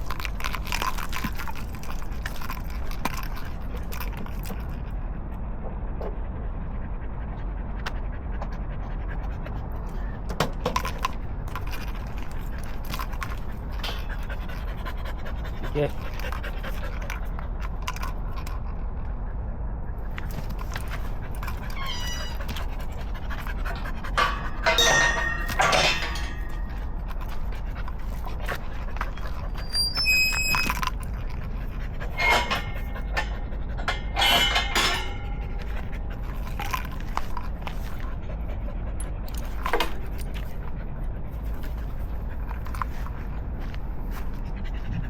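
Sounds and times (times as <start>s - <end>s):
steady low rumble: 0.0s - 45.0s
dog panting: 6.1s - 34.2s, 34.8s - 45.0s.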